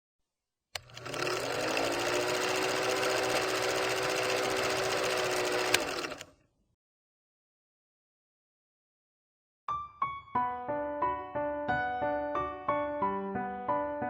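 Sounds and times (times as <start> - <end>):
clicks: 0.8 - 1.2
small motor whirring: 0.8 - 6.3.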